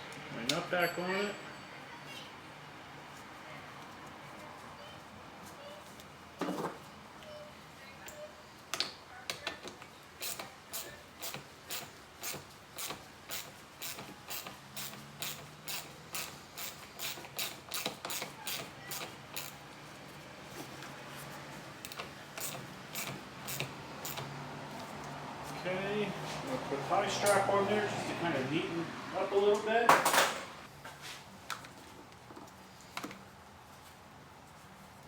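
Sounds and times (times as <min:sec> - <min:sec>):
ratchet wrench clicking: 0:10.2 - 0:19.6, 0:21.8 - 0:24.3.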